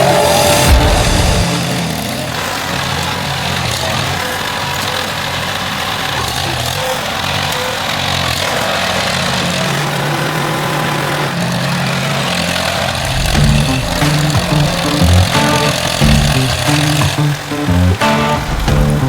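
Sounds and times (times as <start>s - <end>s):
background music: 0.0s - 2.5s, 13.1s - 19.0s
tractor engine running: 0.0s - 19.0s.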